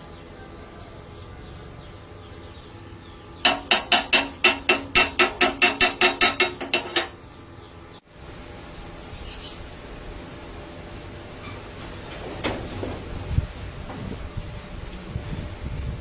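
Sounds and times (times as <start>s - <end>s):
hammer striking metal: 3.4s - 7.2s.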